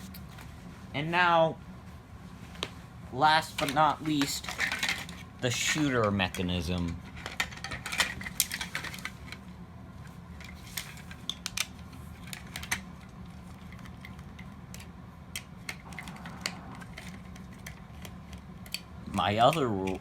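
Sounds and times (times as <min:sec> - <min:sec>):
low background hum: 0:00.0 - 0:20.0
plastic parts clicking: 0:03.6 - 0:09.4, 0:10.4 - 0:13.0, 0:13.6 - 0:20.0.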